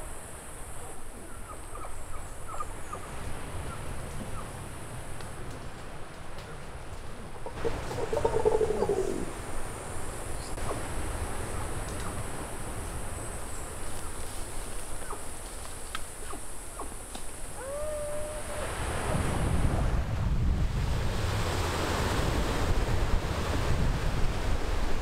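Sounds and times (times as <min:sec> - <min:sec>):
steady high-pitched hiss: 0:00.0 - 0:25.0
birds calling: 0:00.8 - 0:04.6, 0:06.5 - 0:09.4, 0:14.9 - 0:15.4.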